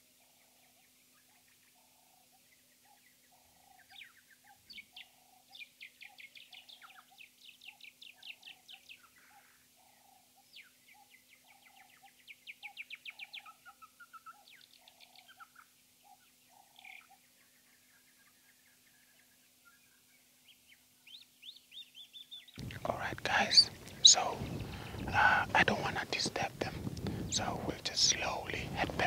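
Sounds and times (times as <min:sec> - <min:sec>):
low pulsing bird note: 0:22.6 - 0:26.0
rapid high bird trilling: 0:22.6 - 0:29.0.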